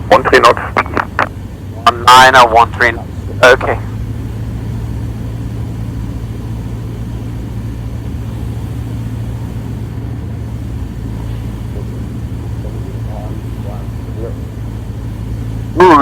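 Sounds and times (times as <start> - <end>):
light aircraft engine droning: 0.0 - 16.0.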